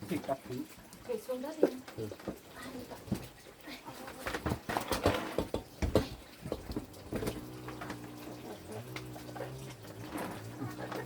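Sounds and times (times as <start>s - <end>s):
refrigerator knocking and clattering: 4.3s - 8.1s.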